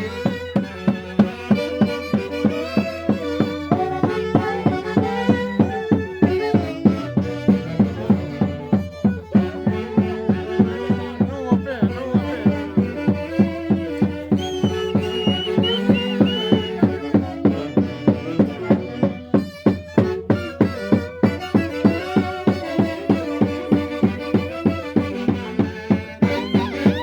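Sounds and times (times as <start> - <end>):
steady drumbeat: 0.0 - 27.0
violins playing melody: 0.0 - 27.0
high melody line: 14.2 - 18.0.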